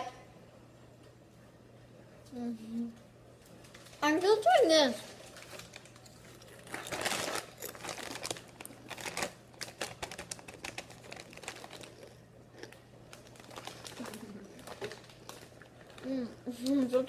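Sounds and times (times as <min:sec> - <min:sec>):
person chewing crunchy food: 0:05.7 - 0:16.7.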